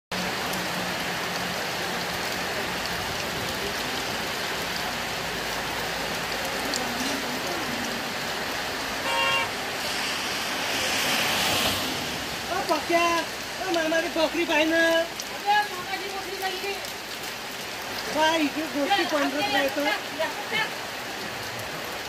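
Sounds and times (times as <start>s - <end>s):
heavy rain on pavement: 0.1s - 22.0s
car tyres hissing on wet road: 0.2s - 17.4s
vehicle horn toot: 9.0s - 9.6s.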